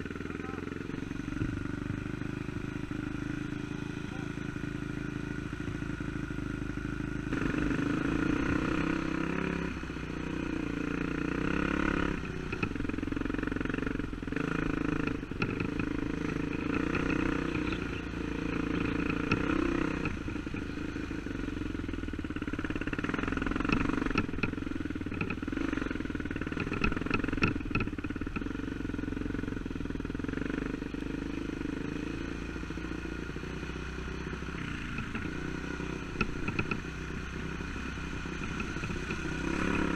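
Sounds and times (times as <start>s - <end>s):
dirt bike engine revving: 0.0s - 29.4s, 30.3s - 39.9s.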